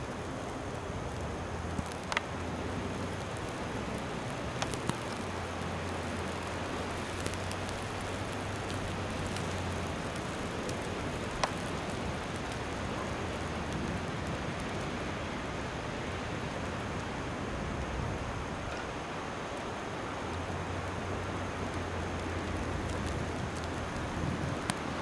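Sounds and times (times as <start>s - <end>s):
blizzard wind and snow hiss: 0.0s - 25.0s
faint clicks: 1.1s - 2.4s, 3.2s - 5.3s, 5.9s - 13.0s.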